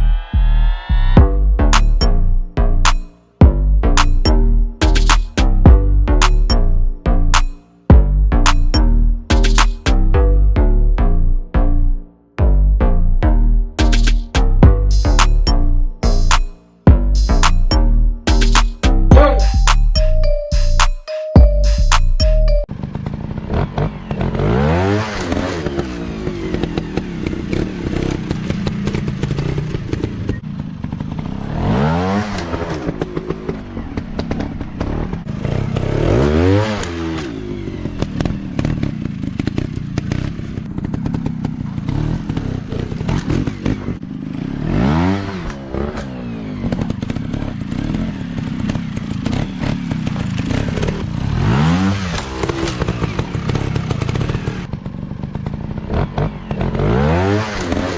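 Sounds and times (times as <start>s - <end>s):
dirt bike engines revving: 22.9s - 57.9s.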